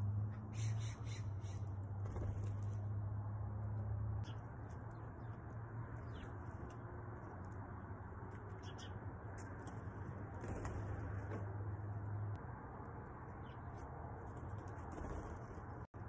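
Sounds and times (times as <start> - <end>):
bird chirps and calls: 0.5 - 1.7, 8.6 - 9.0.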